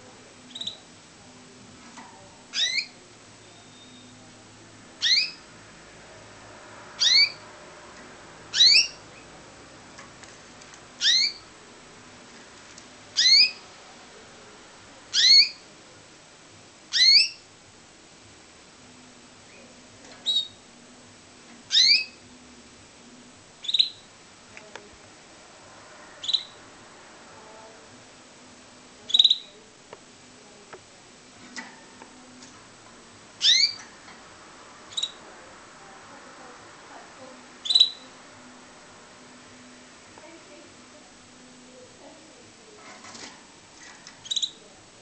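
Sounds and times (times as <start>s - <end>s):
canary chirping: 0.4s - 0.9s, 2.5s - 4.2s, 5.0s - 5.6s, 6.9s - 7.6s, 8.4s - 9.5s, 10.9s - 11.6s, 13.1s - 13.7s, 15.1s - 15.7s, 16.9s - 17.5s, 19.4s - 20.7s, 21.7s - 22.4s, 23.6s - 24.2s, 26.1s - 26.7s, 29.0s - 29.6s, 33.4s - 35.3s, 37.2s - 38.6s, 42.7s - 44.7s.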